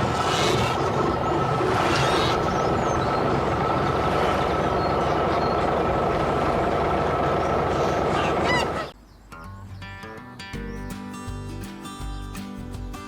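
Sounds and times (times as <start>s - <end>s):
tractor engine running: 0.0s - 9.0s.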